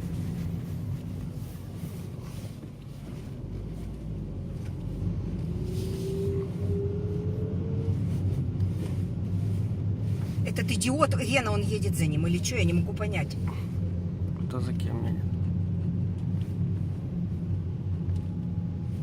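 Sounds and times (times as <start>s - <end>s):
car engine and road noise: 0.0s - 19.0s
faint rising whine: 3.2s - 8.7s.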